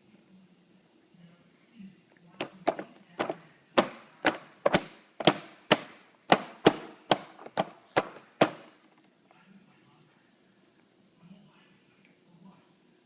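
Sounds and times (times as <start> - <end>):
sharp short knocks: 2.4 - 8.8.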